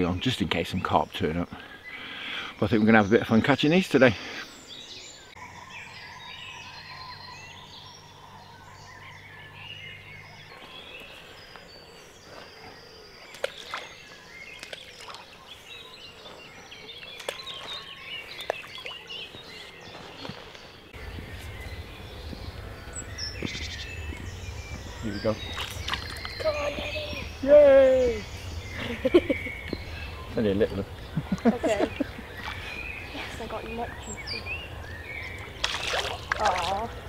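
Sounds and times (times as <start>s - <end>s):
birds singing and chirping: 0.0s - 37.0s
low rumble: 21.0s - 35.6s.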